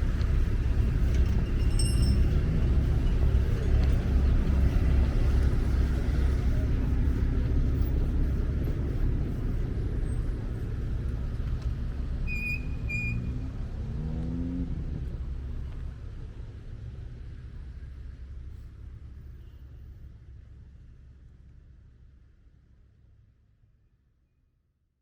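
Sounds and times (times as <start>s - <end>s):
passing cars rumbling: 0.0s - 16.2s.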